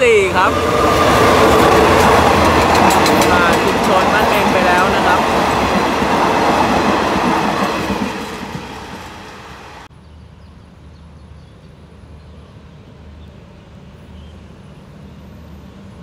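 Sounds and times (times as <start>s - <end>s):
train wheels rumbling and clattering: 0.0s - 9.9s
road traffic hum: 0.0s - 16.0s.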